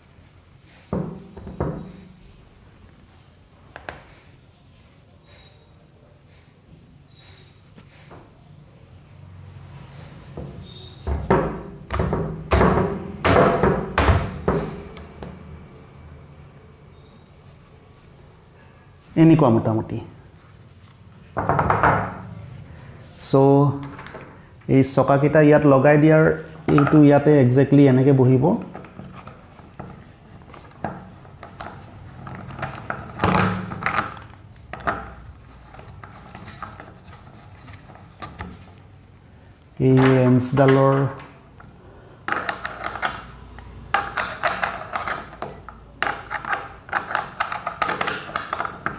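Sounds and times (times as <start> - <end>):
plastic parts knocking together: 30.8 - 35.2, 44.0 - 48.9
trolley parts clicking and knocking: 42.3 - 48.9.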